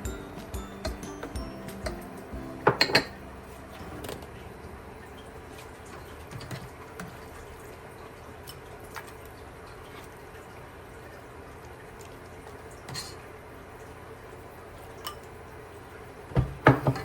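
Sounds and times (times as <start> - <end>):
liquid sloshing: 3.6 - 13.3.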